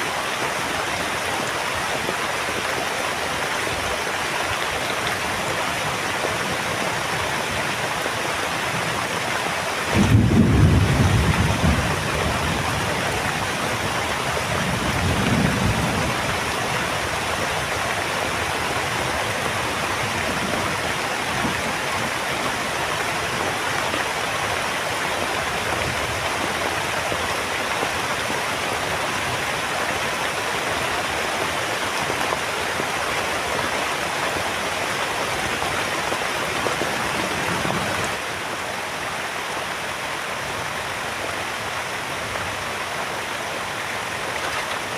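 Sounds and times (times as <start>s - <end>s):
heavy rain: 0.0s - 44.9s
thunder rumbling: 9.9s - 13.0s.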